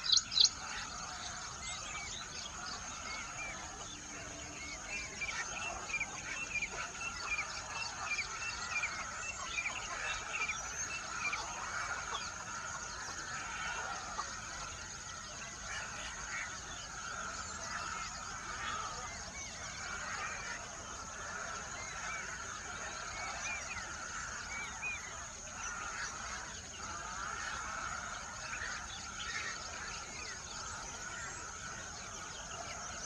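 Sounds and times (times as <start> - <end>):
background bird chatter: 0.0 - 33.0
birds chirping: 0.0 - 33.0.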